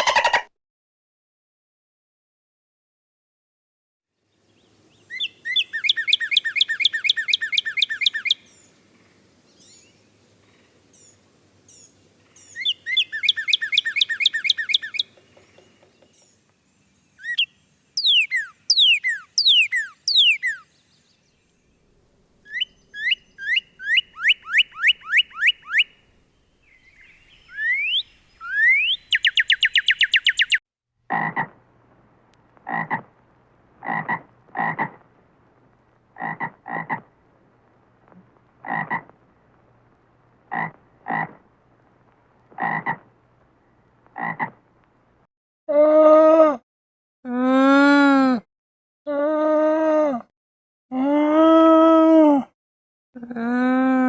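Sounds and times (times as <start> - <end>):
frogs croaking: 31.1 - 31.7, 32.6 - 41.7, 42.5 - 44.7
frogs trilling: 33.8 - 35.1, 38.6 - 39.2, 42.6 - 43.1.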